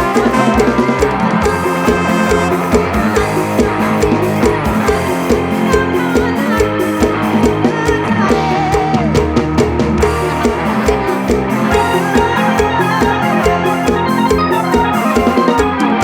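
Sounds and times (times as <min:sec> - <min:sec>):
drum kit beat: 0:00.0 - 0:16.0
plucked string melody: 0:00.0 - 0:16.0.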